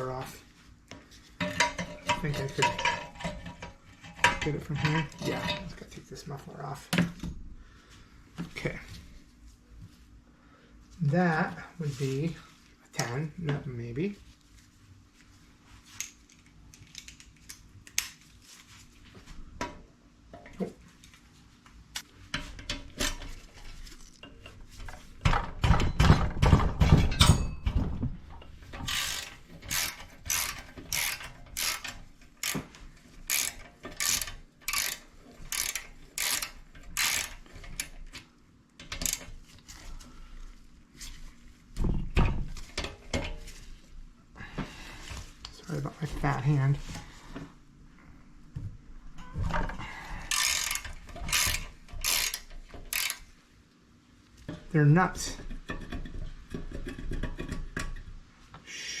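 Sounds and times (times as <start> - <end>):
metal clattering: 25.2 - 32.1
ratchet wrench clicking: 28.9 - 32.6, 33.3 - 38.0, 38.9 - 39.3, 50.3 - 53.3.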